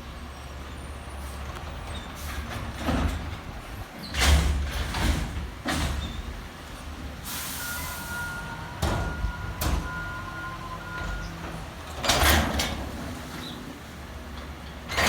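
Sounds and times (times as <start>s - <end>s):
short hisses of air release: 7.3s - 8.1s.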